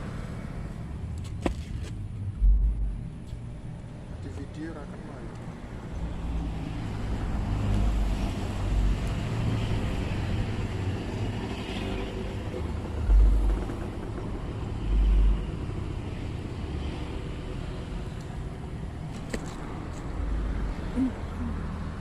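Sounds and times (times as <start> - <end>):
traffic rumble on bridge overhead: 0.0 - 22.0
dull deep thumps: 1.4 - 3.2, 13.0 - 14.3.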